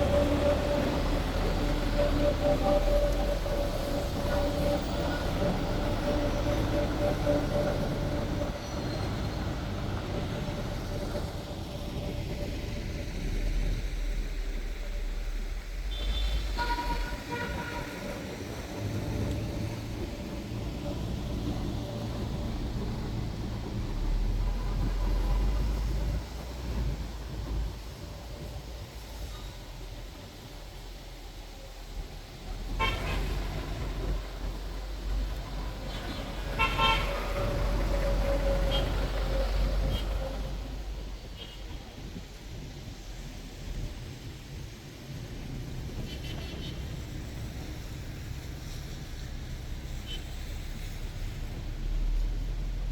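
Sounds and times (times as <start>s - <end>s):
bus engine running: 0.0s - 52.9s
road noise: 0.0s - 52.9s
vehicle horns honking: 15.9s - 18.8s, 32.7s - 34.1s, 35.8s - 40.5s.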